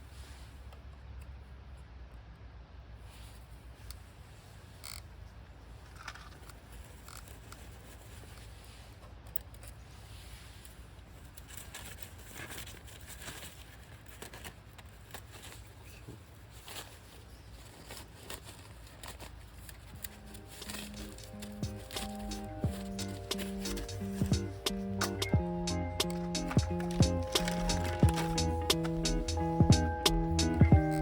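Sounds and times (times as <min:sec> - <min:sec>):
campfire crackling and popping: 0:20.0 - 0:31.0.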